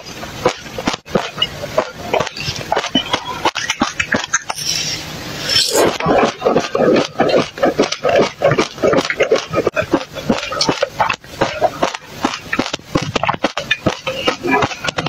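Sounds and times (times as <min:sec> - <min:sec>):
gulps of a drink: 0:00.4 - 0:15.0
person chewing crunchy seeds: 0:04.4 - 0:15.0.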